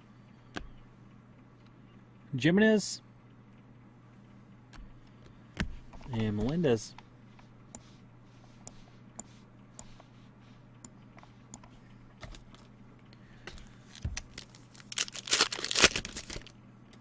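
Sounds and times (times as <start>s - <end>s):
card pack wrapper tearing: 13.9s - 16.6s.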